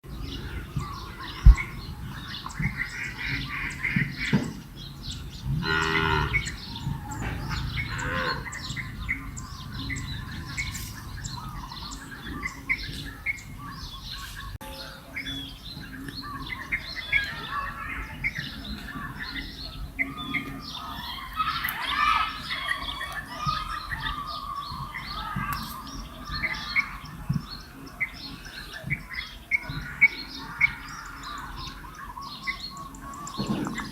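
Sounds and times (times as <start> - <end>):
birds chirping: 0.0 - 33.9
loud bird squawking: 5.6 - 14.5.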